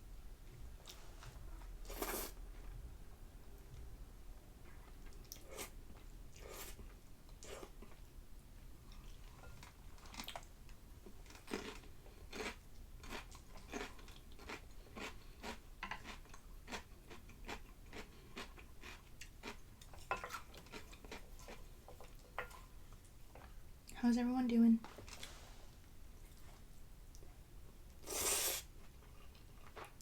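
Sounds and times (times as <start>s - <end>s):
chewing with crisp crunching: 4.6s - 23.6s, 26.1s - 30.0s.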